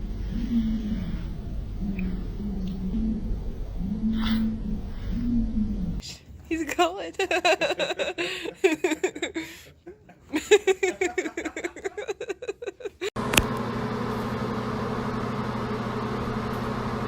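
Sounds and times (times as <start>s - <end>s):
low mechanical hum: 0.0s - 6.0s, 13.2s - 17.0s
person laughing: 7.2s - 13.2s.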